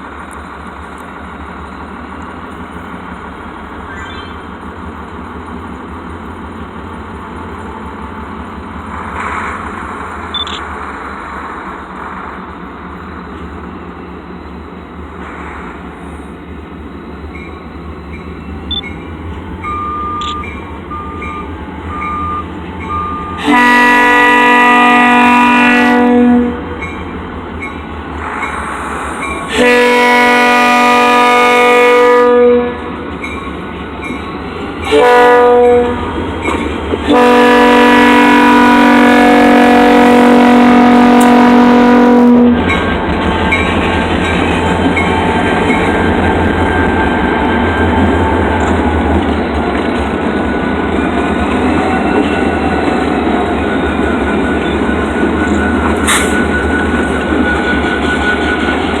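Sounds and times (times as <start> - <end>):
train rumble and wheel noise: 0.0 - 59.0
crossing bell ringing: 17.2 - 23.4
train air horn blasts: 21.9 - 26.7, 28.2 - 33.0, 34.8 - 36.2, 37.0 - 42.7.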